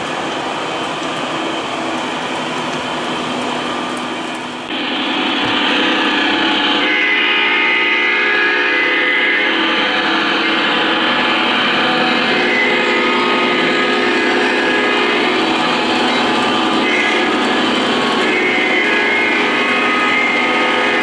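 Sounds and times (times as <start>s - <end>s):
model train wheel and motor noise: 0.0s - 21.0s
held tones: 4.7s - 21.0s.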